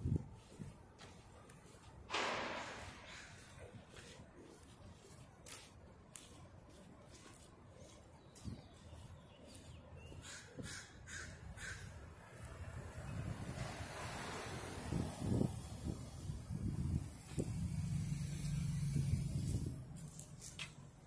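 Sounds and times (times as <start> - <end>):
faint street ambience: 0.0 - 21.0
bird calling: 9.5 - 11.9.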